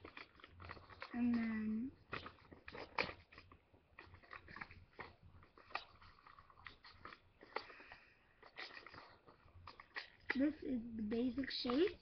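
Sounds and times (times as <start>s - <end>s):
paper rustling and crinkling: 0.0s - 12.0s.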